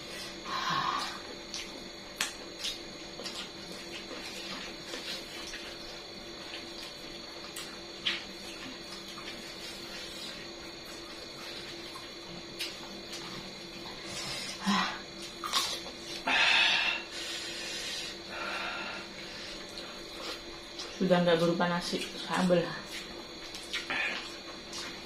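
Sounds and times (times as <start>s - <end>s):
steady background hum: 0.0s - 25.0s
person chewing: 1.0s - 16.3s, 19.1s - 21.0s, 22.8s - 25.0s
mouth smacking: 22.9s - 24.9s.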